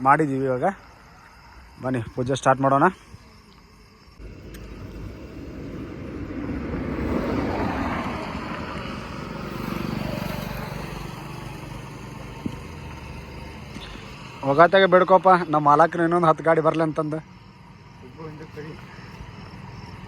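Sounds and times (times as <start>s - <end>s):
vehicles passing: 4.2s - 20.0s.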